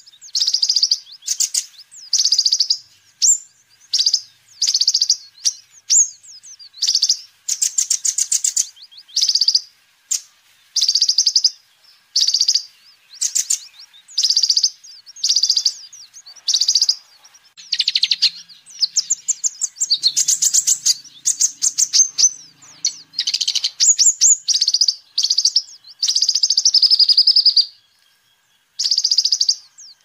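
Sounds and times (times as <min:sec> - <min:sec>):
sunbird chipping trills: 0:00.0 - 0:30.0.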